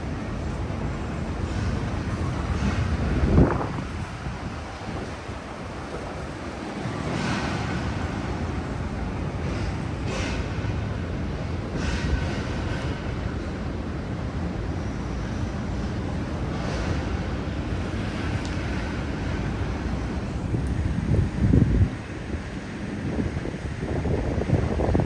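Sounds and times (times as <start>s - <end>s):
vehicles passing: 0.0s - 10.3s
city street traffic: 0.0s - 25.0s.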